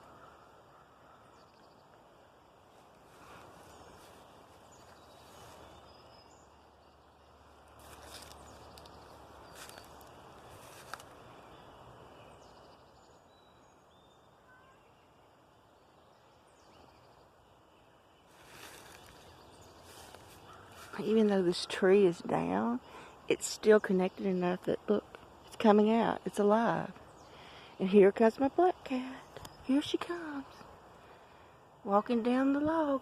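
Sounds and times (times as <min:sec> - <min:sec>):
low steady hiss: 0:00.0 - 0:33.0
soft rustling: 0:02.7 - 0:06.0, 0:07.7 - 0:11.3, 0:18.3 - 0:21.4.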